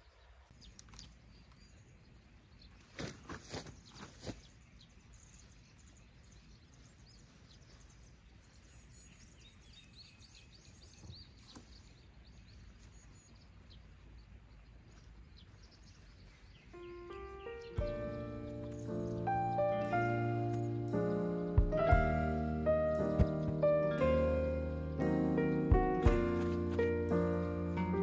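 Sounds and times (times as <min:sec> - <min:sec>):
faint birds chirping: 0:00.0 - 0:28.0
small clicks: 0:00.6 - 0:01.6.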